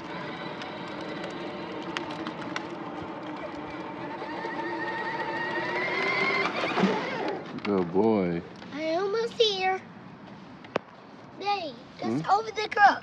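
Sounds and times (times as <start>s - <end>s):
ride-on vehicle motor whining: 0.0s - 7.9s.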